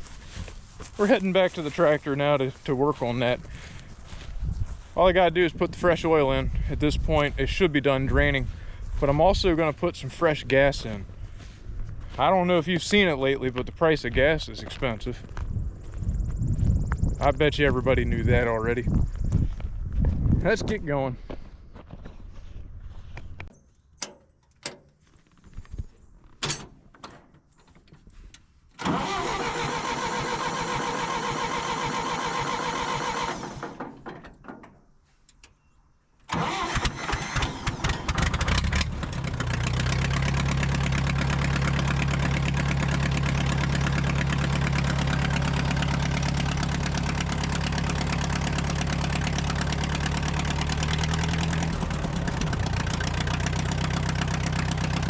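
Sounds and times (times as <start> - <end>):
tractor engine idling: 0.0 - 15.1, 28.8 - 34.8, 36.3 - 55.0
tractor engine starting: 0.1 - 11.5, 28.7 - 34.8, 36.3 - 55.0.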